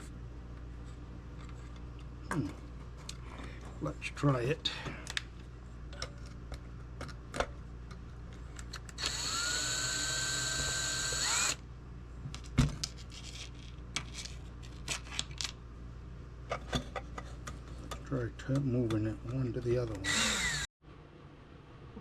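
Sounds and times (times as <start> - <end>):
power drill whining: 9.0 - 11.6, 20.0 - 20.7.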